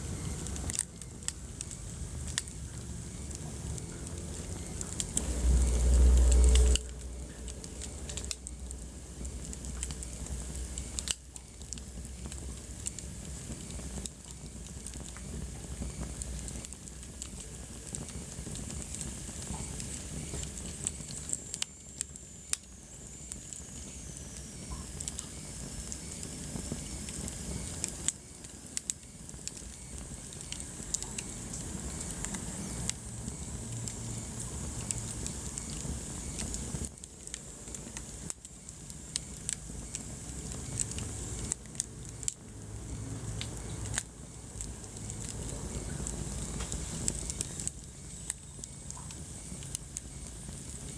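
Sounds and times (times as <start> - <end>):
wood fire crackling: 0.0 - 50.9
low rumble: 2.0 - 11.1.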